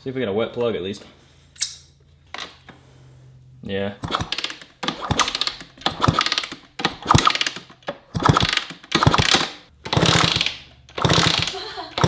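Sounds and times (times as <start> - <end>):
engine turned over by kickstarter: 4.0 - 12.0.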